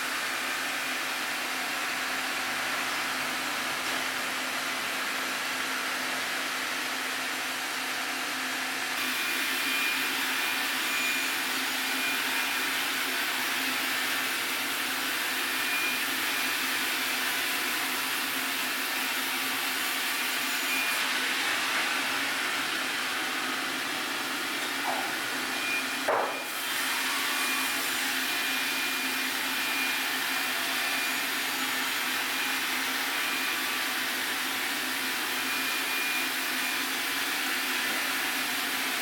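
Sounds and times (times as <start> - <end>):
sawmill milling a log: 9.0 - 39.0.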